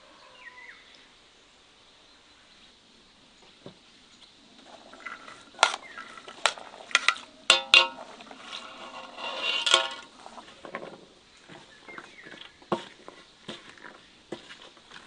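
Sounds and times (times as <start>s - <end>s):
metal scraping: 4.6s - 11.0s
metal cookware clattering: 6.9s - 8.1s, 8.8s - 10.1s.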